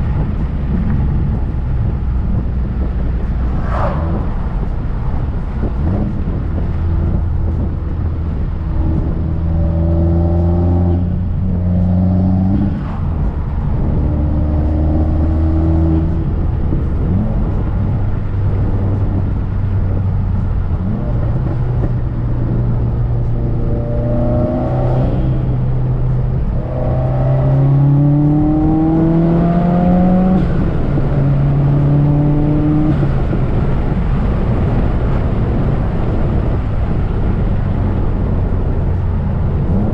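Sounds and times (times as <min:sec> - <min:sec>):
car engine accelerating through gears: 0:00.0 - 0:39.9.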